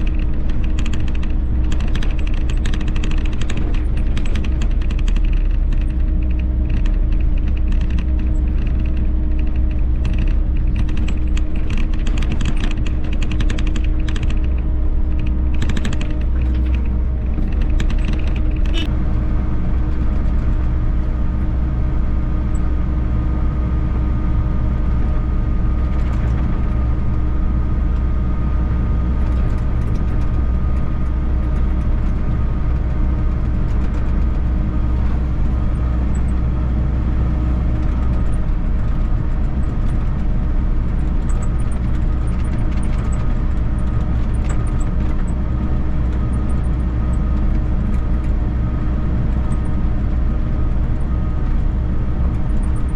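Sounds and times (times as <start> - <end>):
machine clicks and squeaks: 0.0 - 18.9, 25.7 - 26.9, 29.1 - 36.6, 37.6 - 48.4, 49.3 - 49.9, 50.6 - 52.9
excavator diesel engine running: 0.0 - 52.9.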